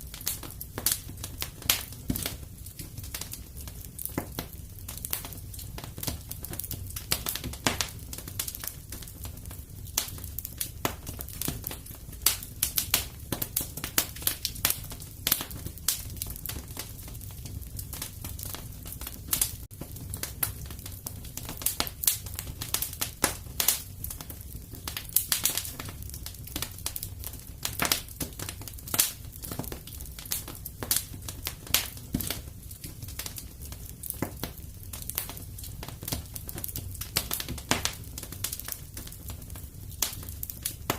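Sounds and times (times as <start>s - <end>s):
fire crackling in fireplace: 0.0s - 40.9s.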